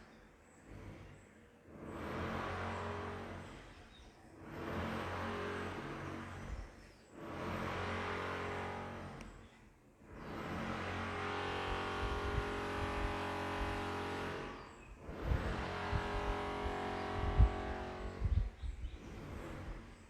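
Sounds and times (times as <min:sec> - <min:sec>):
vehicle engine running: 0:10.1 - 0:18.4.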